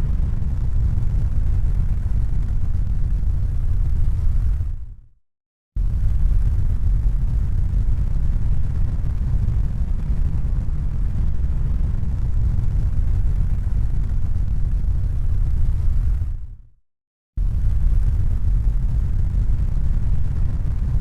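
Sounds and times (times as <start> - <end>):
low rumbling noise: 0.0 - 5.0, 5.8 - 16.7, 17.4 - 21.0.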